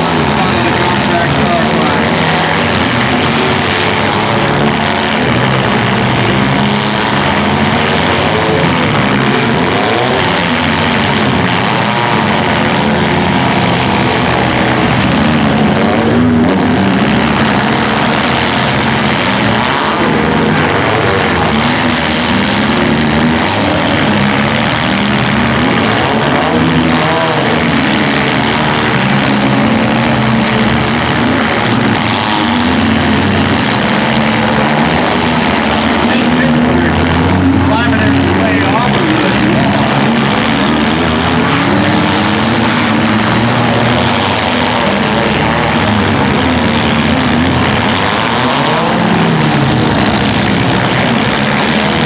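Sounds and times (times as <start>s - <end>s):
several car engines revving: 0.0s - 52.0s.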